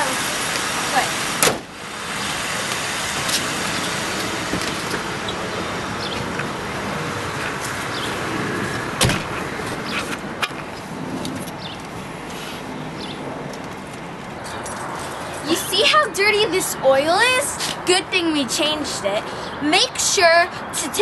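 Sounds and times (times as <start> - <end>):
car engine running: 0.0 - 9.4.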